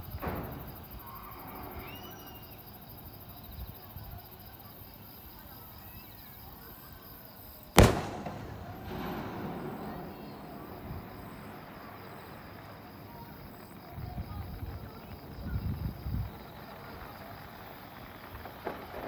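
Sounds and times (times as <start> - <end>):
firework boom with echo: 7.8 - 12.8.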